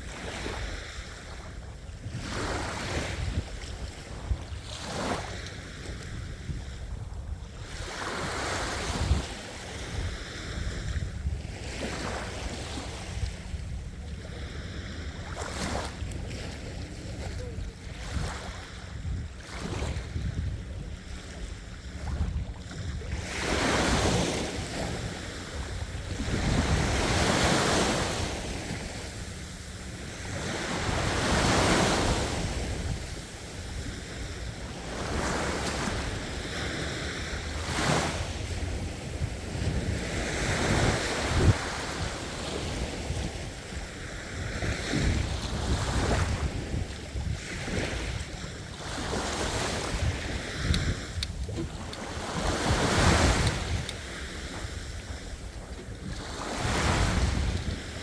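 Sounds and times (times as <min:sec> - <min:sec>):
ocean waves breaking on shore: 0:00.0 - 0:58.0
wind rumble on microphone: 0:00.0 - 0:58.0.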